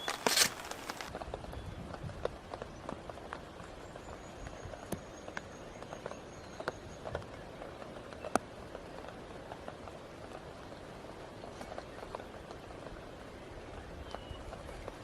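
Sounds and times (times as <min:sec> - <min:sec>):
rain hissing: 0:00.0 - 0:01.3
raindrops tapping: 0:00.0 - 0:15.0.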